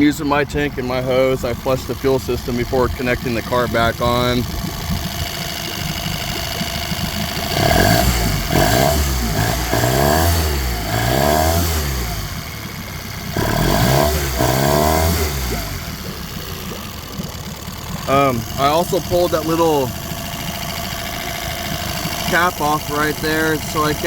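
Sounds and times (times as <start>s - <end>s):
outboard motor revving and idling: 0.0s - 24.0s.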